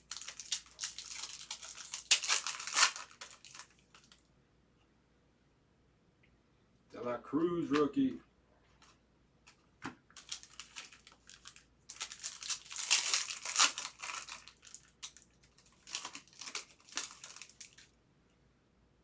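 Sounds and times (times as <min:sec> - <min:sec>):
foil wrapper crinkling and tearing: 0:00.0 - 0:04.2, 0:10.1 - 0:17.9.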